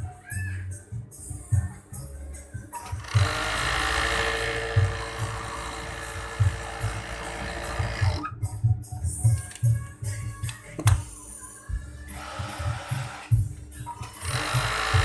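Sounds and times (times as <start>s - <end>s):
sewing machine running: 3.0s - 8.2s, 14.0s - 15.0s.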